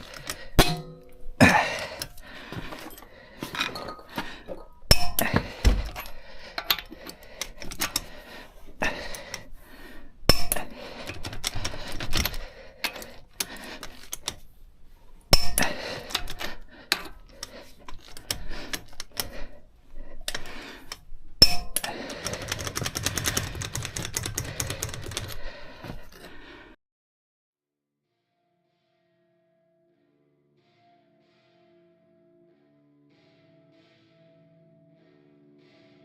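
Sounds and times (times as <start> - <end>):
metal tools clinking: 0.0 - 8.1
sharp metallic knocks: 0.6 - 1.2
rapid clicking: 21.8 - 25.5.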